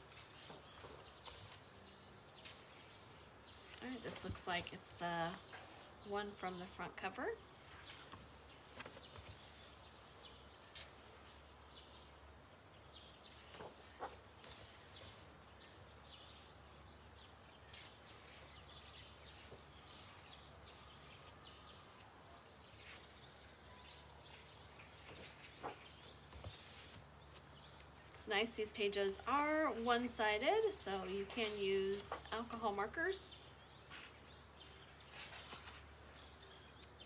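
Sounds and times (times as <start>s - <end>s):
paper pages rustling: 0.0s - 6.4s, 7.7s - 12.2s, 13.3s - 15.3s, 17.6s - 18.5s, 19.2s - 21.4s, 24.9s - 27.4s, 29.3s - 32.6s, 35.0s - 36.2s.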